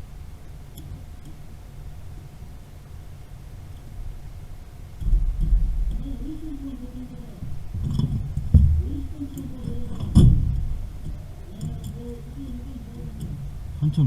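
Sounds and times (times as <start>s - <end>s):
low murmured voices: 4.9s - 14.0s
sharp knocks on pipes: 7.8s - 8.9s.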